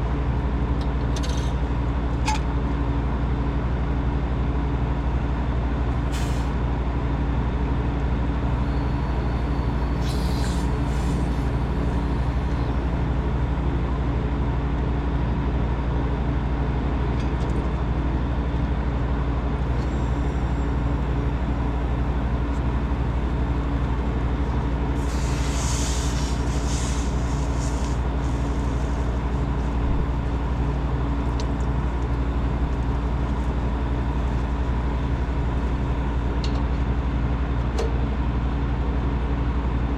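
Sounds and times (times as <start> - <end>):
refrigeration equipment humming: 7.2 - 15.6, 16.4 - 37.0
short hiss: 25.0 - 29.4.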